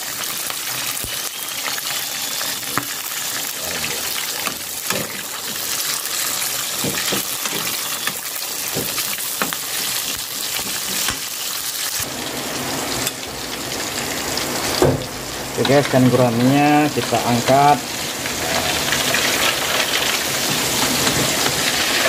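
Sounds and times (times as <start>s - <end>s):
chilies sizzling in oil: 0.0s - 22.0s
fish deep-frying in oil: 0.0s - 22.0s
spatula scraping a wok: 0.9s - 11.6s, 18.3s - 22.0s.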